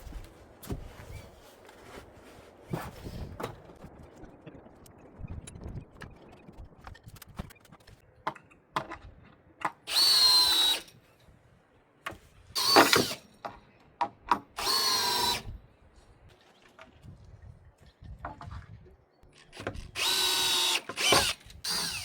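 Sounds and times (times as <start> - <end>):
power drill whining: 9.9 - 10.9, 12.6 - 13.2, 14.6 - 15.5, 19.7 - 22.0.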